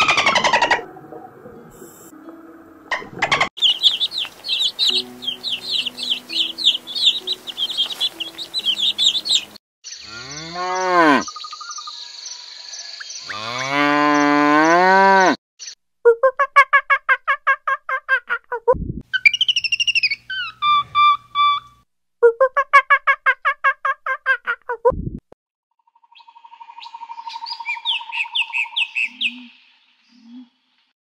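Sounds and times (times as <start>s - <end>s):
baby chicks peeping: 3.6s - 9.6s
cow mooing: 10.1s - 11.2s, 13.3s - 15.4s.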